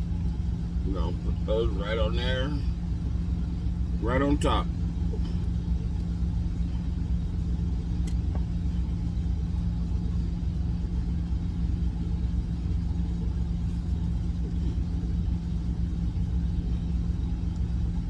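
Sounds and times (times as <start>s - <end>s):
diesel truck engine idling: 0.0s - 18.0s
faint click: 8.0s - 8.5s.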